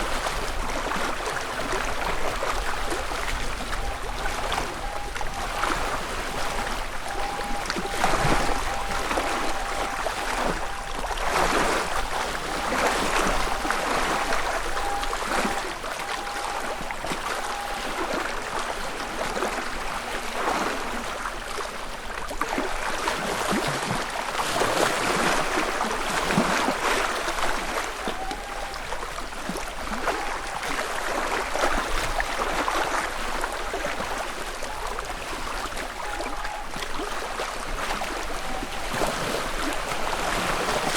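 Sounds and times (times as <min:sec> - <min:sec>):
lake waves lapping on shore: 0:00.0 - 0:40.9.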